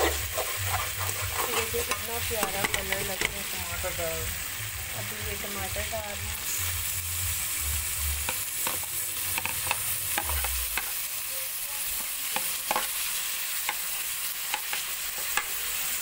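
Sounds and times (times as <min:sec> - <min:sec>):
metal spatula scraping pan: 0:00.0 - 0:03.6
meat sizzling in a pan: 0:00.0 - 0:16.0.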